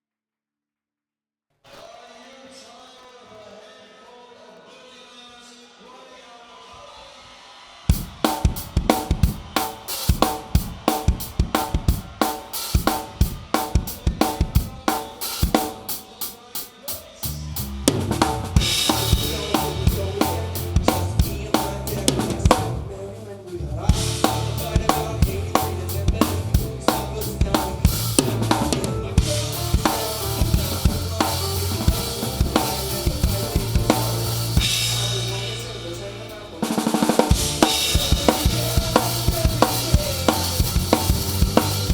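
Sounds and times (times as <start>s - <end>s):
live rock band: 7.9s - 16.4s, 17.6s - 23.0s, 23.9s - 41.9s
drum beat: 7.9s - 17.2s, 17.9s - 22.7s, 23.9s - 41.9s.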